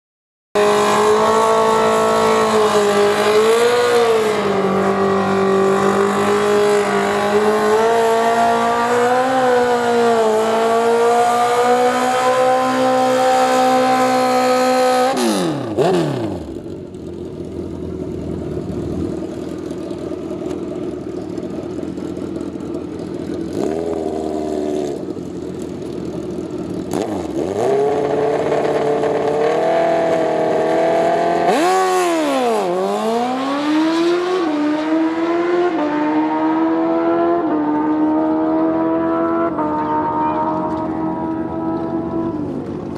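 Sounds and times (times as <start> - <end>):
motorcycle engine at high revs: 0.6 - 42.9
engine throttle blips: 38.7 - 42.9.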